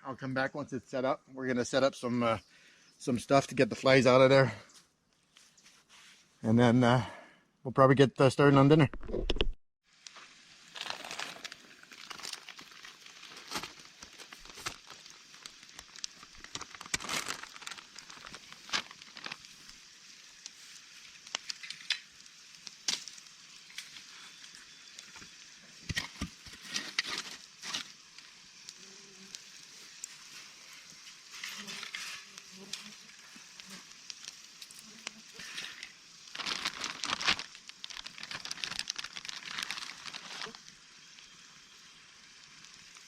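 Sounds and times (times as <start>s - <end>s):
tent fabric rustling and crinkling: 5.2s - 6.4s, 10.1s - 22.0s, 29.6s - 40.7s.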